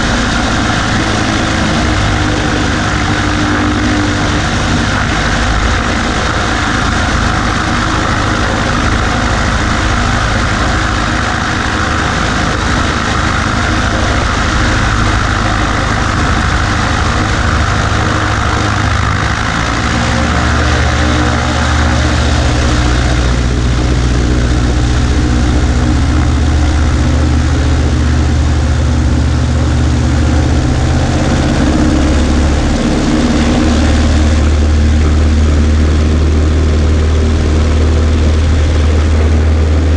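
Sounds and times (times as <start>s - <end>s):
airplane engine drone: 0.0s - 39.9s
wind rushing over microphone: 0.0s - 39.9s.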